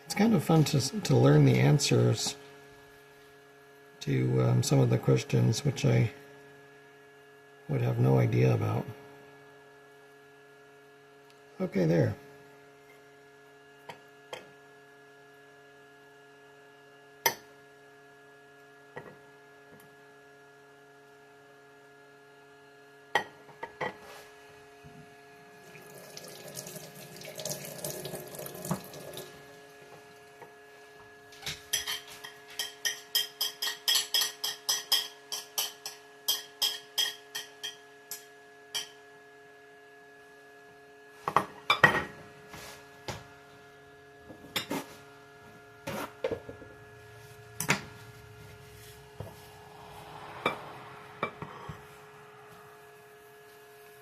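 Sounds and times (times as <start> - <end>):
electrical hum: 0.0 - 54.0
kitchen tap running: 25.7 - 29.4.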